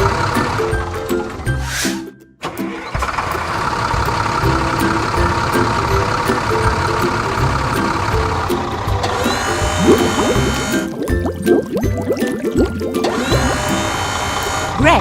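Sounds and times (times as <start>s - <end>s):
cartoon tractor engine running: 0.0s - 15.0s
simple background music: 4.4s - 15.0s.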